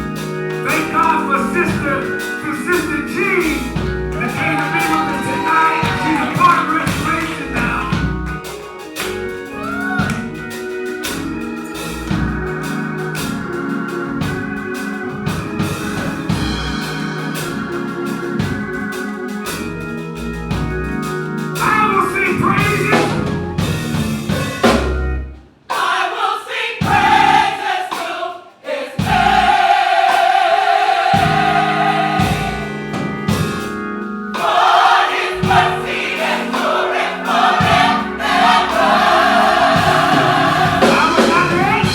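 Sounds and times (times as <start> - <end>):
choir singing: 0.0 - 19.3, 25.7 - 33.3, 34.3 - 41.9
bass and drums: 0.0 - 25.4, 26.8 - 27.5, 29.0 - 29.8, 31.1 - 34.0, 35.4 - 36.0, 37.4 - 41.9
organ chords: 0.0 - 25.5, 26.8 - 27.7, 29.0 - 41.9.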